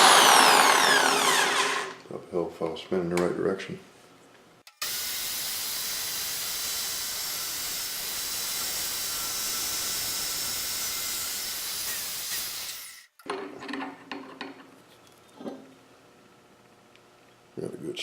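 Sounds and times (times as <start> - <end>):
wood lathe boring a hole: 0.0 - 2.0.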